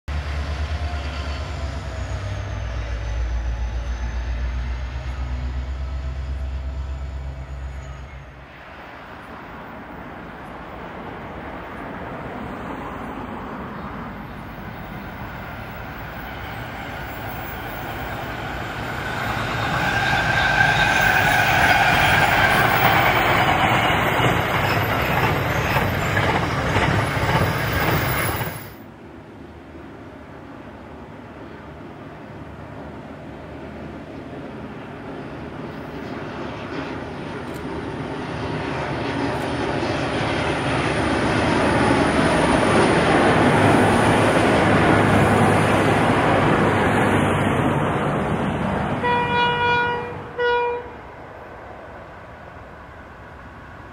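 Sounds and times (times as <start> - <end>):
freight train approaching: 0.1 - 53.9
rail noise: 0.1 - 53.9
train wheel squeal: 0.2 - 8.7, 15.5 - 28.8.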